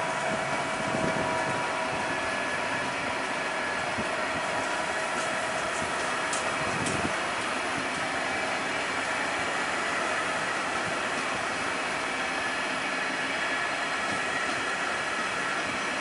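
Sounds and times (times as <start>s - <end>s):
steady whine: 0.0s - 16.0s
train wheels rolling on rail: 0.0s - 16.0s.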